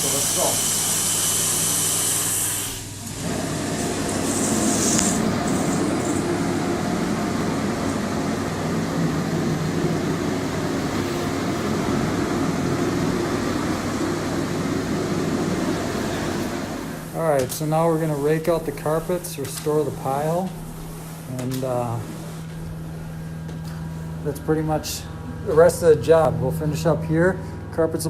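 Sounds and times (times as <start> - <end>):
carpet cleaning machine hiss: 0.0 - 22.5
steady machine drone: 0.0 - 28.0.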